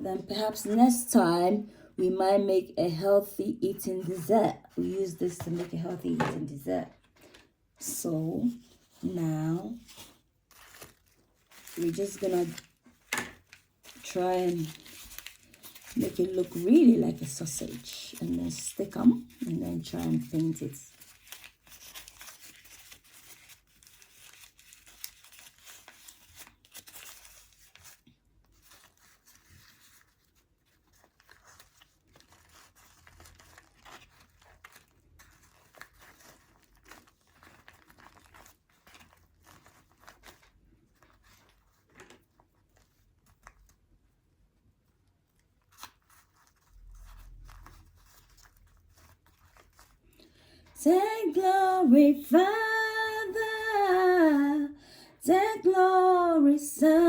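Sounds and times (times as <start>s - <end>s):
paper rustling and tearing: 8.5s - 43.9s, 45.3s - 50.3s.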